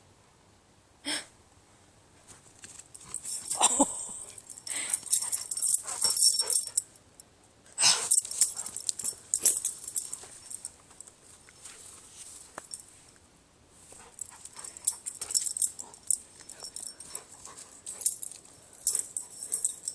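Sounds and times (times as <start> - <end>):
dog whining and huffing: 3.0 - 6.8.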